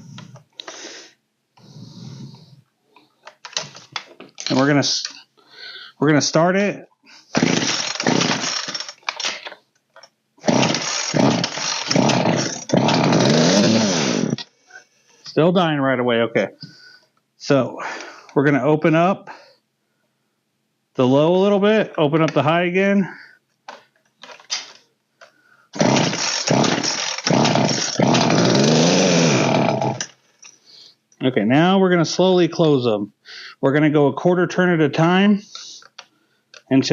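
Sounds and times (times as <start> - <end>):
chainsaw engine firing: 7.4 - 9.2, 10.4 - 14.4, 25.8 - 30.1
recoil starter pulls: 7.4 - 9.6, 10.4 - 14.5, 25.8 - 30.1.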